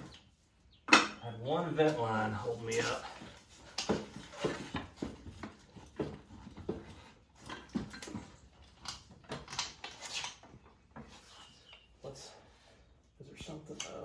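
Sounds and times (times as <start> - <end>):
hand tools clicking and knocking: 2.7 - 11.1.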